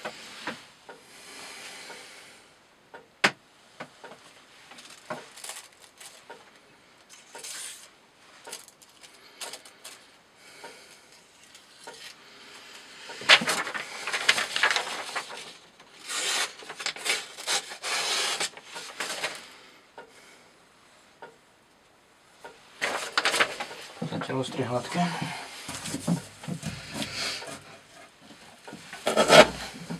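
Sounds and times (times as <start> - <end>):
knife cutting through rope: 29.0 - 29.8.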